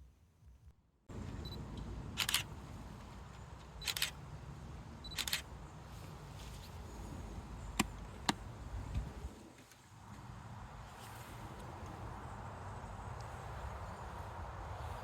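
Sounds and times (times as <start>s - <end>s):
sharp clicks: 1.3s - 2.5s, 3.3s - 4.2s, 5.1s - 5.5s.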